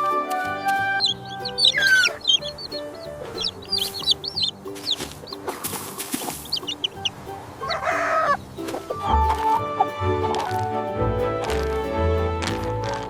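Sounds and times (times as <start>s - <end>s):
soft background music: 0.0s - 13.0s
chicken clucking: 0.3s - 10.7s.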